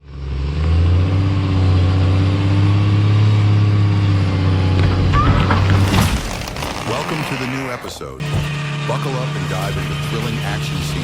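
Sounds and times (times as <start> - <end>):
large engine running: 6.5 - 11.0.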